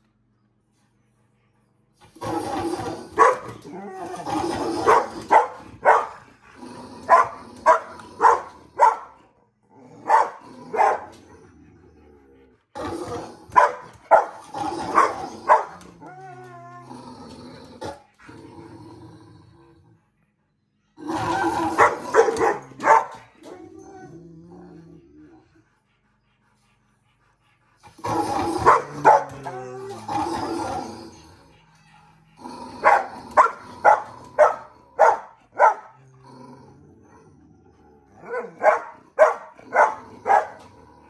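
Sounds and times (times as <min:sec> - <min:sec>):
dog barking: 0:03.2 - 0:03.5, 0:04.8 - 0:06.2, 0:07.1 - 0:09.2, 0:10.0 - 0:11.1, 0:13.6 - 0:15.8, 0:21.8 - 0:23.2, 0:28.6 - 0:29.4, 0:32.8 - 0:36.0, 0:38.3 - 0:40.6.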